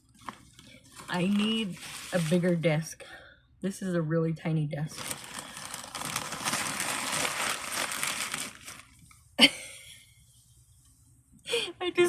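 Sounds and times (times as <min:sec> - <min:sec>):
wrapping crinkling: 0:00.0 - 0:02.7, 0:04.9 - 0:09.2.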